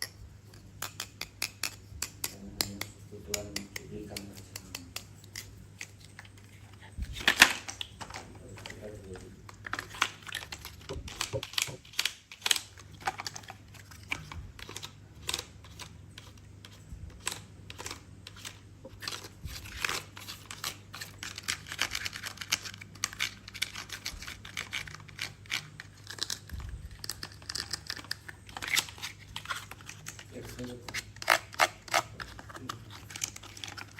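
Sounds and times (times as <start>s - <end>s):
toys or packaging rattling: 6.3s - 16.3s, 17.2s - 33.9s.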